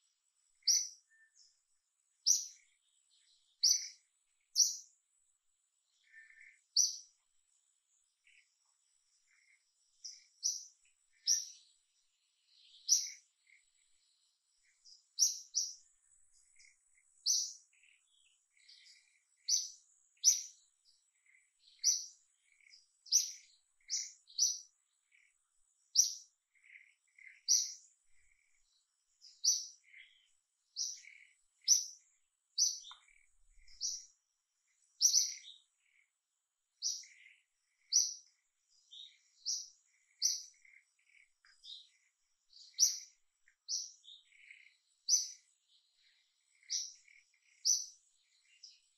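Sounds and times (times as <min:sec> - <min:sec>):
bird chirping: 0:00.0 - 0:48.9.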